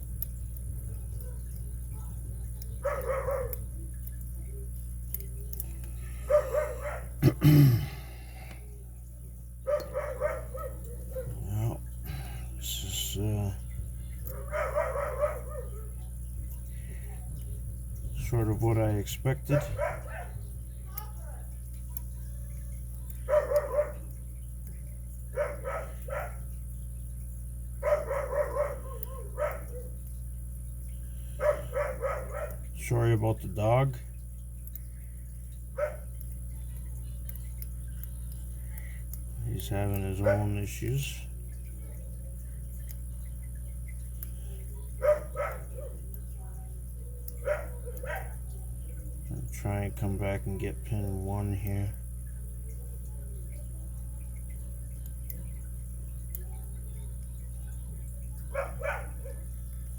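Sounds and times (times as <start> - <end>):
steady low hum: 0.0 - 59.9
dog yipping and barking: 2.8 - 3.6, 9.7 - 11.4, 14.4 - 16.0, 23.3 - 24.0, 25.4 - 26.4, 27.8 - 29.9, 31.4 - 32.6, 45.0 - 46.0, 47.4 - 48.4, 58.5 - 59.4.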